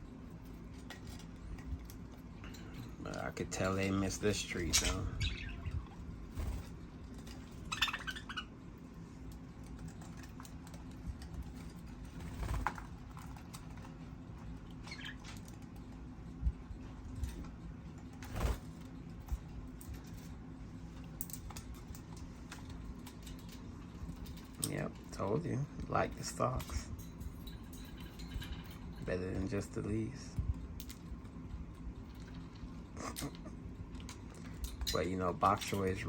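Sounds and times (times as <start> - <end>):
birds pecking at vegetables: 0.0 - 36.0
steady low hum: 0.0 - 36.0.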